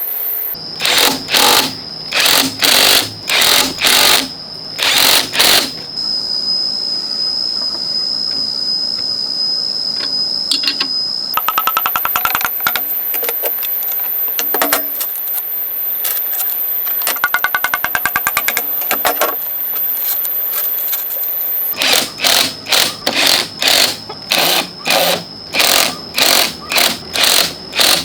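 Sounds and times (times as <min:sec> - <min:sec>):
rapid tool clicking: 0:00.8 - 0:05.8, 0:21.8 - 0:28.0.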